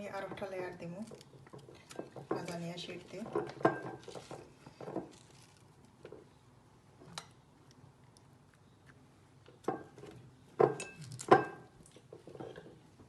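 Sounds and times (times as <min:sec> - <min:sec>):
kitchenware clinking on baking dish: 0:03.2 - 0:04.2.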